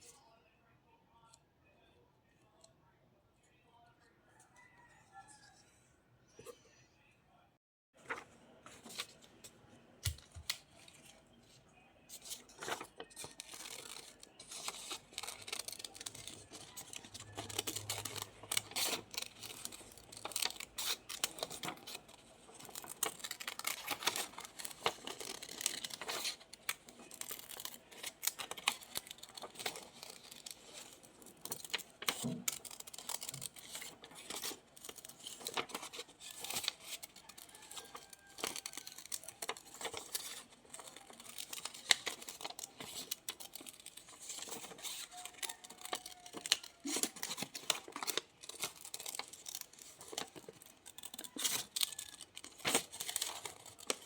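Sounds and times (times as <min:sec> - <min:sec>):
paper rustling and tearing: 0:12.2 - 0:54.0.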